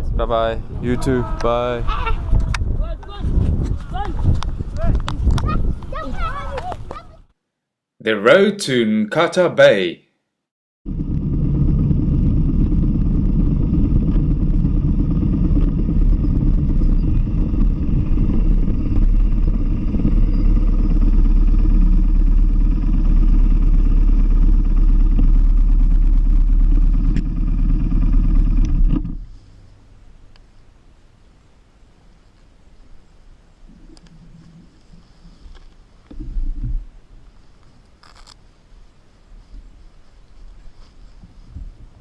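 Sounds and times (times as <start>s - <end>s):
wind rushing over microphone: 0.0s - 7.2s, 10.9s - 29.3s
motorcycle engine running: 10.9s - 29.4s.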